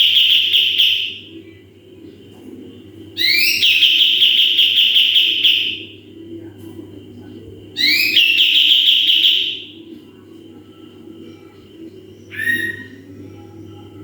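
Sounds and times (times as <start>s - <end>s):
songbird trilled whistled calls: 3.2s - 5.8s, 7.8s - 9.6s.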